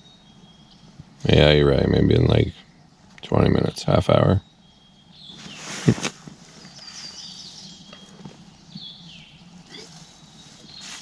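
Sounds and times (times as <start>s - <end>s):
songbirds chirping: 0.0s - 11.0s
rustle or knock: 5.3s - 7.2s.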